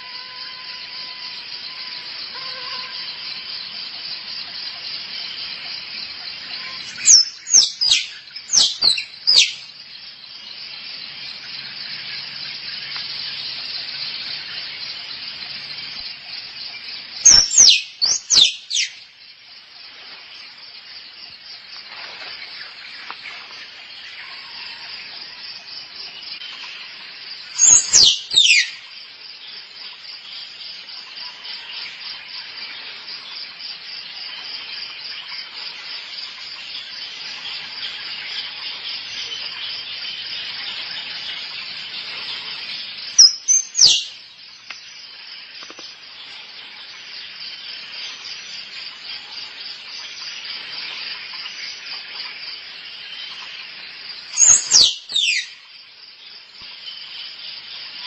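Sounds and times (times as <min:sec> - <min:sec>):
insects buzzing: 0:00.0 - 0:58.0
squirrel chirping: 0:06.9 - 0:09.6, 0:17.3 - 0:19.0, 0:27.6 - 0:28.8, 0:43.2 - 0:44.1, 0:54.4 - 0:55.5.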